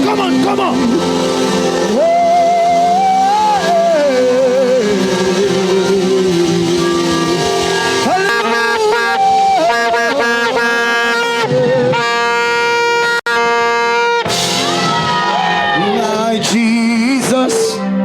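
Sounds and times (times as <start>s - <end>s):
live worship music: 0.0s - 18.0s
congregation shouting: 6.6s - 12.0s, 14.2s - 16.7s.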